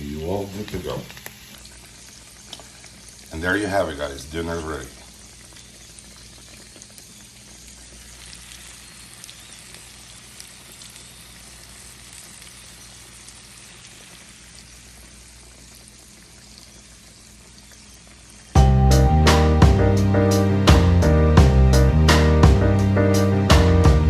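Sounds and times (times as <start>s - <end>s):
potatoes sizzling in a pan: 0.0s - 18.6s.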